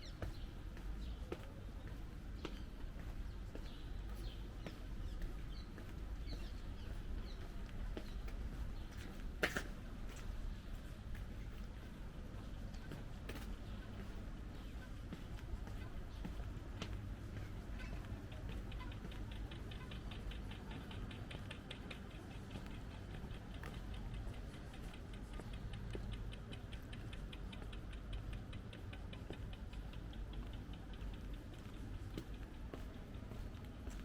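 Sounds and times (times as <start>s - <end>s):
low street rumble: 0.0s - 34.0s
rapid even ticking: 18.3s - 33.2s.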